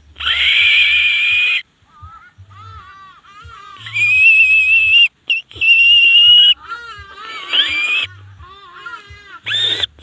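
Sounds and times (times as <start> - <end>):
leaf whistle bird calls: 3.7 - 8.4, 9.4 - 10.0.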